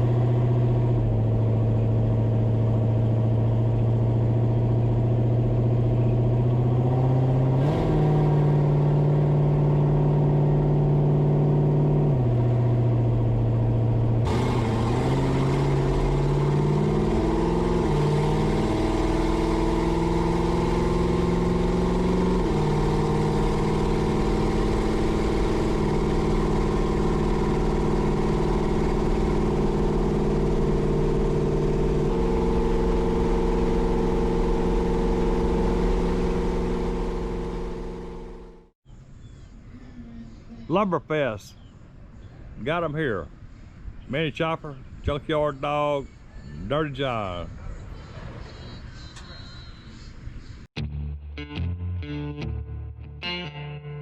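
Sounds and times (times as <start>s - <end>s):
vehicle engine shifting gears: 0.0s - 38.8s.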